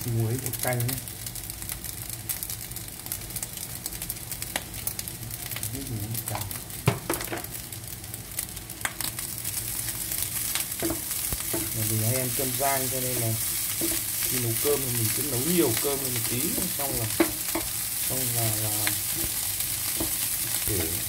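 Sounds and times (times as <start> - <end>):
food sizzling in a hot pan: 0.0 - 21.0
spatula knocking pan: 10.8 - 11.8, 13.7 - 14.4, 16.5 - 17.8, 19.0 - 21.0.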